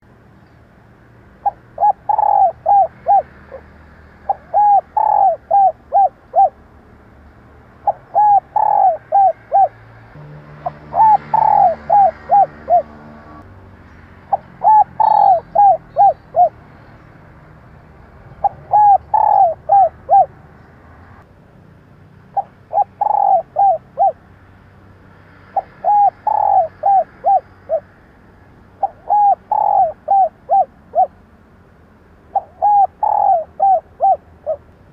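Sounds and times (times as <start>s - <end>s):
dove cooing: 1.4s - 6.6s, 7.8s - 9.8s, 10.5s - 13.1s, 14.3s - 16.6s, 18.3s - 20.4s, 22.3s - 24.2s, 25.5s - 27.8s, 28.8s - 31.2s, 32.3s - 34.7s.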